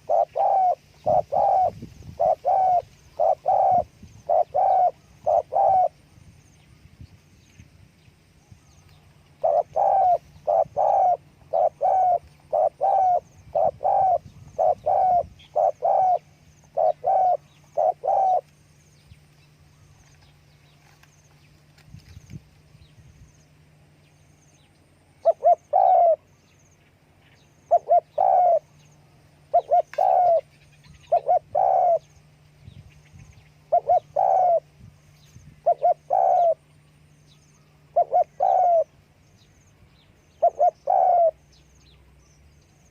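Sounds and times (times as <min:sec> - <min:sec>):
dove cooing: 0:00.0 - 0:06.0, 0:09.4 - 0:18.5, 0:25.2 - 0:26.3, 0:27.6 - 0:28.9, 0:29.5 - 0:32.2, 0:33.6 - 0:34.8, 0:35.6 - 0:36.7, 0:37.8 - 0:39.0, 0:40.3 - 0:41.5.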